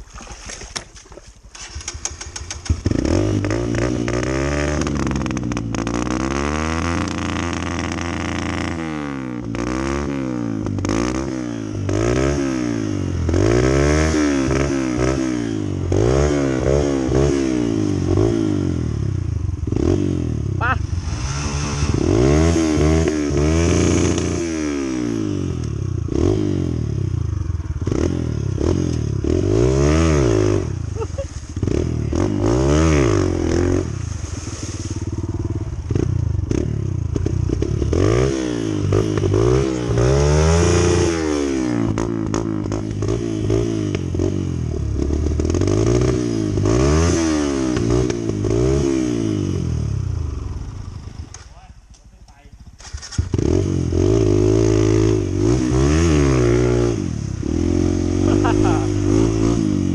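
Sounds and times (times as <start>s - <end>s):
motorcycle rattling and knocking: 1.4s - 8.8s, 35.1s - 41.1s
motorcycle engine revving: 1.5s - 59.9s.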